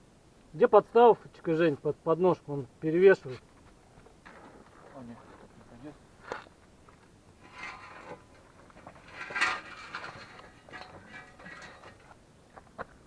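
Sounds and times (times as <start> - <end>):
metal tools clinking: 7.4 - 12.1
faint metallic ring: 7.4 - 12.2.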